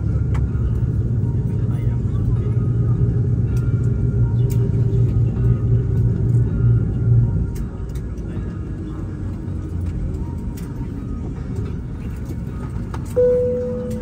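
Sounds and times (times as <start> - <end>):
vehicle interior rumble: 0.0 - 14.0.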